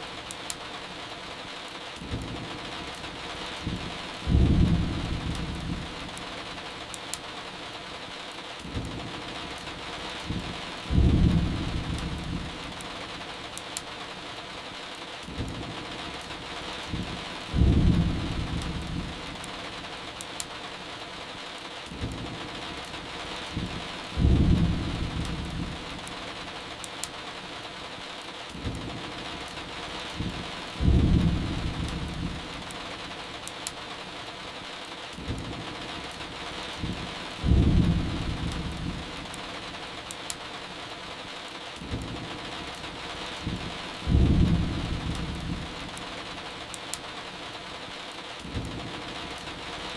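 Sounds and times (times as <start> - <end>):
steady rain: 0.0 - 49.9
firewood crackling: 0.1 - 49.9
thunder rumbling: 3.5 - 6.1, 10.1 - 12.8, 15.3 - 19.9, 21.9 - 26.5, 28.6 - 32.7, 35.2 - 39.4, 41.8 - 46.0.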